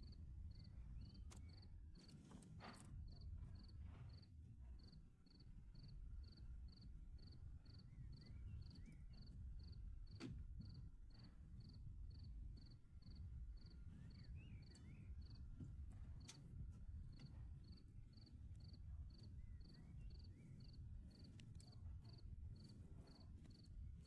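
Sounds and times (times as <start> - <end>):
low background rumble: 2.8 - 24.0
cricket chirping: 17.2 - 21.2.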